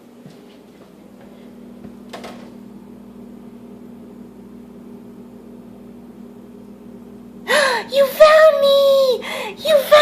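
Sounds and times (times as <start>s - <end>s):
appliance humming: 0.0s - 10.0s.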